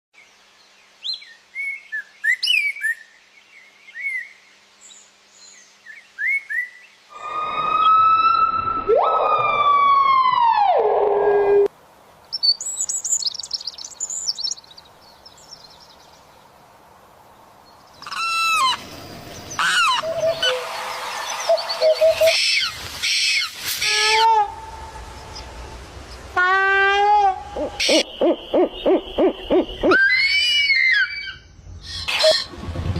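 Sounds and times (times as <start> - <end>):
loud descending bird call: 7.1 - 11.7, 26.4 - 32.5
bird chirps: 12.3 - 16.3
high rapid bird twittering: 12.4 - 16.0.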